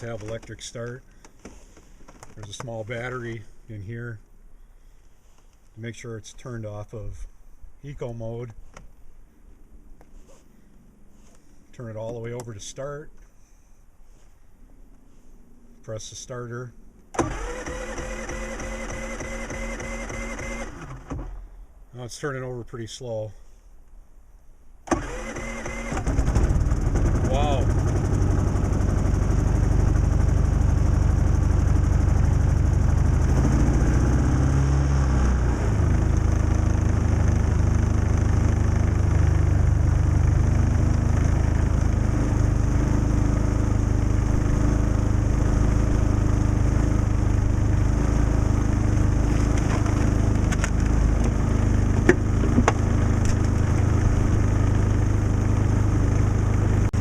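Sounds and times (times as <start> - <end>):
generator engine running: 0.0 - 3.6, 17.1 - 21.6, 24.9 - 57.0.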